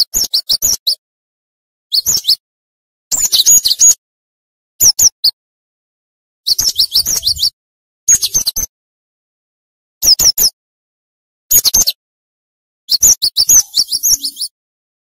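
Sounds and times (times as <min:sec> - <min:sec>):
bird singing high chirps: 0:00.0 - 0:01.0, 0:01.9 - 0:02.4, 0:03.1 - 0:04.0, 0:06.5 - 0:08.7, 0:12.9 - 0:14.6.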